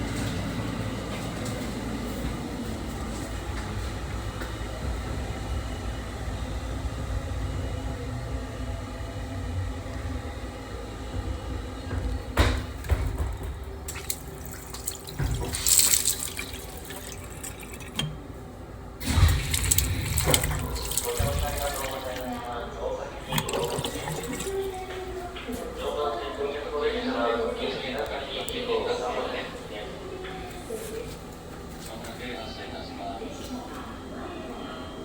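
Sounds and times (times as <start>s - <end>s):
train rumble: 0.0s - 35.0s
tap running water: 11.9s - 18.4s, 19.0s - 22.6s, 23.2s - 25.6s.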